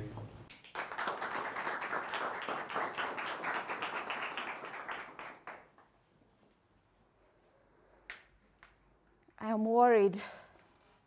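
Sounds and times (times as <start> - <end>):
audience applauding: 0.5 - 5.8.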